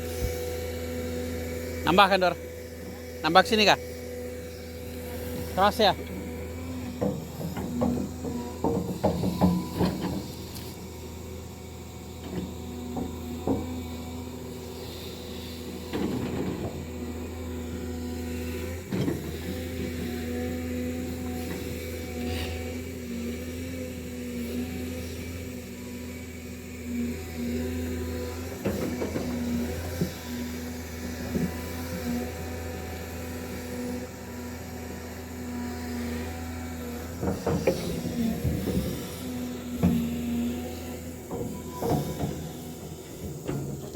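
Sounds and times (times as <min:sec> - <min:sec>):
heavy machine engine running: 0:00.0 - 0:43.9
earthwork clunks and knocks: 0:05.3 - 0:10.7, 0:12.2 - 0:14.0, 0:28.4 - 0:32.2, 0:37.1 - 0:43.9
sharp metallic knocks: 0:05.4 - 0:10.4.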